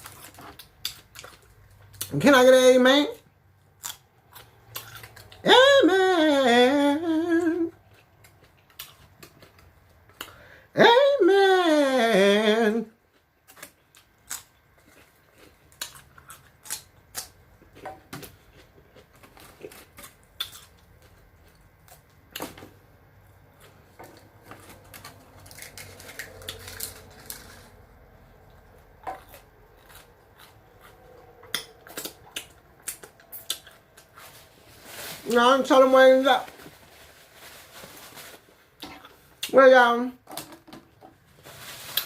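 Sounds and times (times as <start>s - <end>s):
food being chewed: 0.0s - 2.1s, 3.8s - 5.4s, 7.8s - 10.4s, 13.0s - 22.5s, 23.3s - 34.4s.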